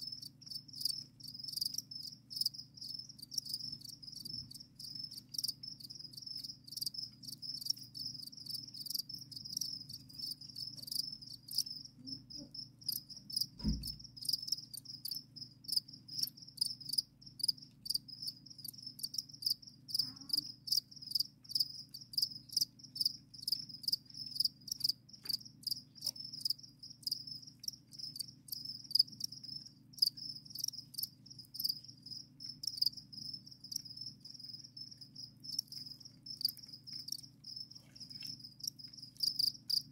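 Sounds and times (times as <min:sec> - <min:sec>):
crickets chirping: 0:00.0 - 0:39.9
soft knock: 0:13.6 - 0:14.0.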